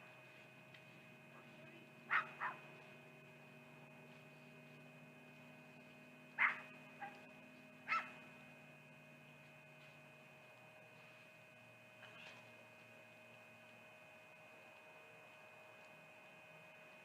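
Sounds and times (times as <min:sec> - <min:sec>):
steady electrical hum: 0:00.0 - 0:17.0
short bark-like animal calls: 0:02.1 - 0:02.6, 0:06.4 - 0:07.2, 0:07.9 - 0:08.2.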